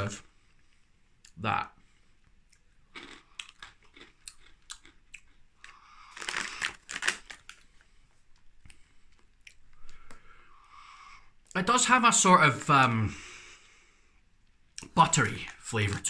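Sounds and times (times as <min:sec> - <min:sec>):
crunchy chewing of pretzels: 0:02.1 - 0:10.4
snack packet rustling: 0:02.9 - 0:10.2.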